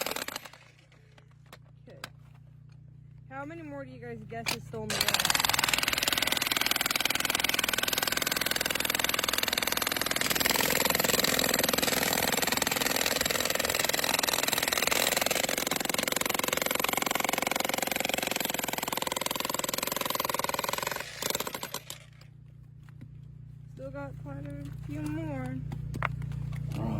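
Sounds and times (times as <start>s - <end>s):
jackhammers hammering rock: 0.0s - 1.4s, 3.6s - 22.3s.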